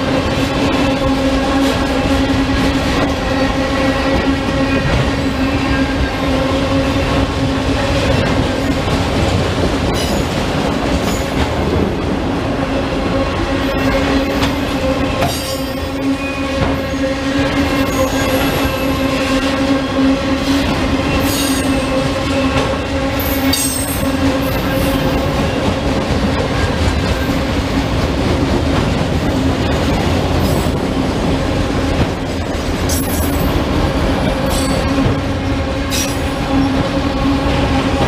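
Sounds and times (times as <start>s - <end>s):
train rumbling past: 0.0s - 38.0s
wheels squealing on rails: 0.3s - 7.2s, 13.5s - 27.6s, 35.8s - 38.0s.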